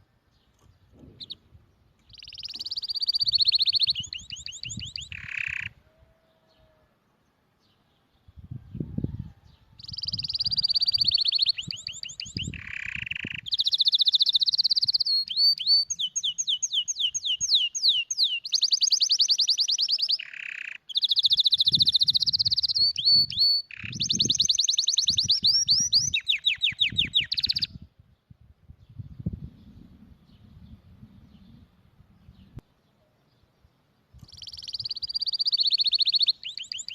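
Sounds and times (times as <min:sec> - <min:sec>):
canary singing trills: 0:00.5 - 0:06.8, 0:09.8 - 0:27.8, 0:34.2 - 0:36.9.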